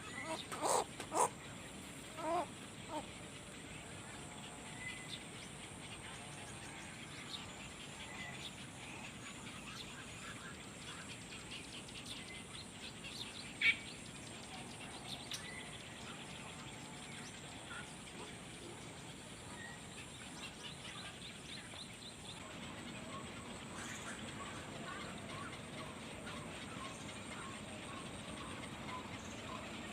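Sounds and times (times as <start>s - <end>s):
small birds chirping: 0.0s - 6.5s.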